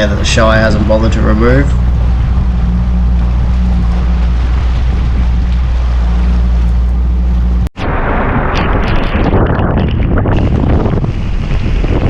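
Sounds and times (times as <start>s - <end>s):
outboard motor humming: 0.0s - 7.7s
wind buffeting microphone: 0.0s - 12.0s.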